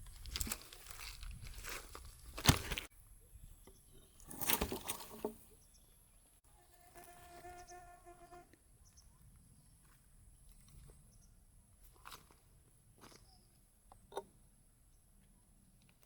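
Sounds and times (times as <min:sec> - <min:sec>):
rustling and handling noises: 0:00.0 - 0:02.9.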